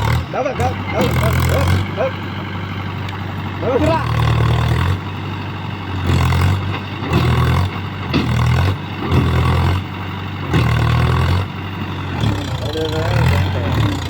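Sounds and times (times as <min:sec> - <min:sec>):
tractor engine labouring: 0:00.0 - 0:14.0.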